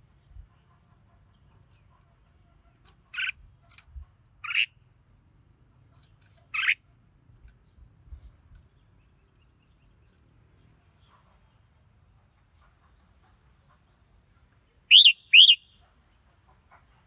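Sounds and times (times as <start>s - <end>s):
bulbul calls: 3.2s - 3.4s, 6.6s - 6.8s, 14.9s - 15.6s
faint short bird notes: 14.9s - 15.6s.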